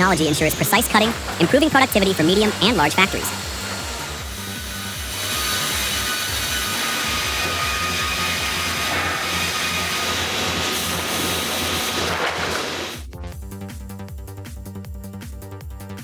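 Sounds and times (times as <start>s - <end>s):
background music with steady beat: 0.0s - 8.2s, 13.0s - 16.0s
saw line whining: 0.0s - 13.1s.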